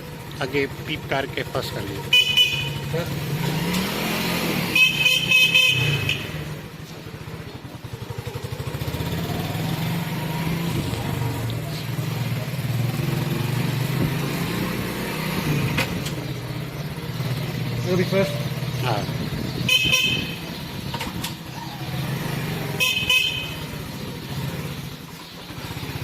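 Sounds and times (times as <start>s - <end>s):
small motorcycle engine: 0.0s - 26.0s
horn beeping: 2.0s - 2.9s, 4.6s - 6.6s, 19.6s - 20.6s, 22.7s - 24.0s.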